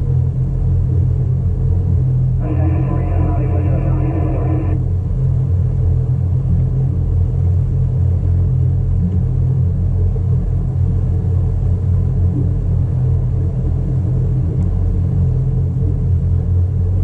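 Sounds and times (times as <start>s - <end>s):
boat engine low rumble: 0.0s - 17.0s
high-pitched tone with overtones: 2.4s - 4.8s.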